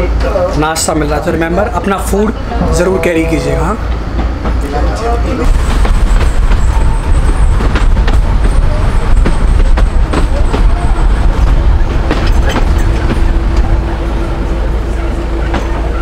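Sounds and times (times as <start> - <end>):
wind rumble on microphone: 5.4 - 14.2
train wheels clicking over rail joints: 5.5 - 13.8.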